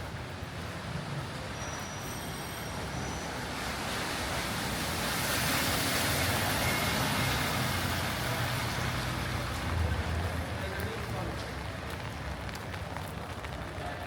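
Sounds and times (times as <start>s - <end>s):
steady rainfall: 0.0s - 14.0s
car tyres hissing on wet road: 2.1s - 11.8s.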